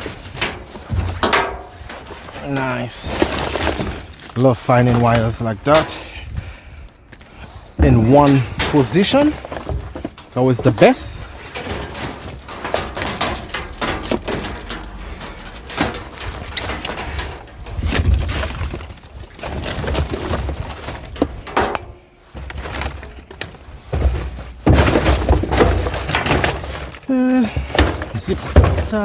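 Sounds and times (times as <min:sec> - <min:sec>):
cables and plastic clattering: 0:00.0 - 0:29.0
hands rummaging through junk: 0:00.0 - 0:29.0
low thuds: 0:07.7 - 0:19.0.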